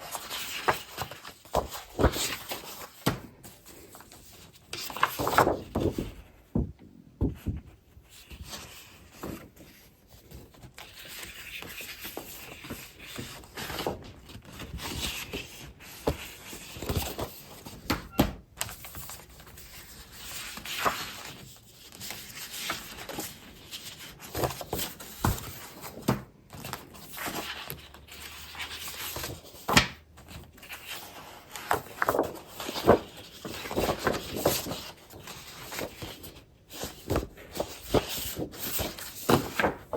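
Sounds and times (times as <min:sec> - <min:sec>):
paper and packaging rustling: 0:08.1 - 0:39.9.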